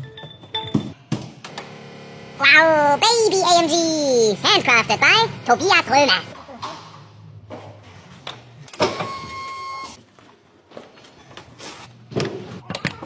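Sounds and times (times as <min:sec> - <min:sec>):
small electric motor whining: 0:01.5 - 0:06.3.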